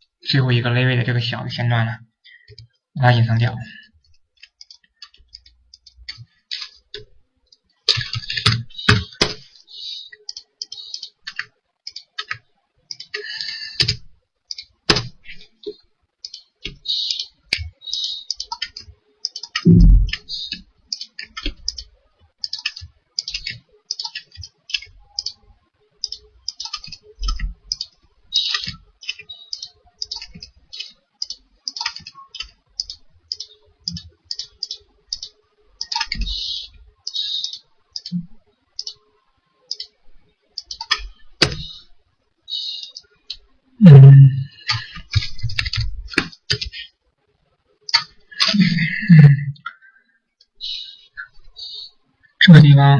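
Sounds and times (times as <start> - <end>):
mouse clicking: 4.4 - 25.4, 26.0 - 39.0, 39.7 - 40.0, 40.6 - 41.9, 42.5 - 43.4, 44.0 - 46.8, 47.9 - 48.7
keyboard typing: 7.9 - 9.5, 10.1 - 25.4, 26.0 - 38.2, 39.7 - 40.0, 40.6 - 41.8, 42.7 - 46.9
dull low thumps: 19.7 - 20.2.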